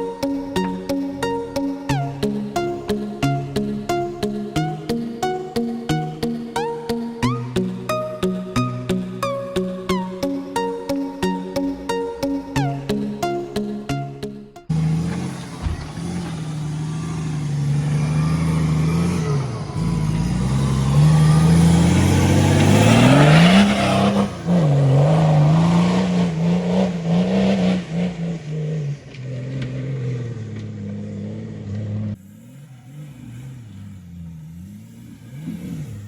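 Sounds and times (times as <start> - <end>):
off-road vehicle engine revving: 0.0 - 10.0, 14.7 - 36.0.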